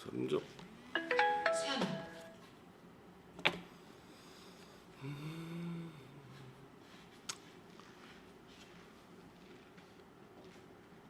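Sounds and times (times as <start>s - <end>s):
person humming: 5.0s - 6.6s.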